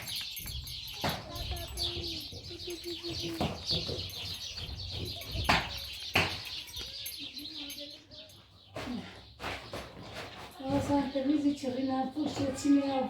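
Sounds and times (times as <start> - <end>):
birds chirping: 0.0 - 13.0
sharp knocks: 3.3 - 6.5.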